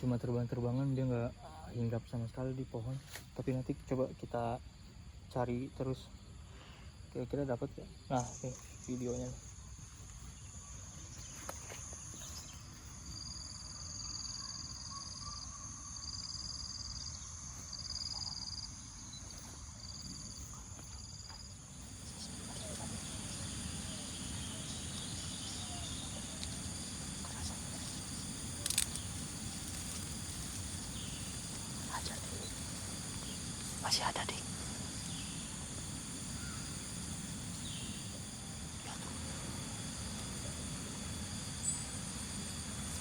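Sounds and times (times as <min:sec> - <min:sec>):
high-pitched insect chorus: 0:00.0 - 0:43.0.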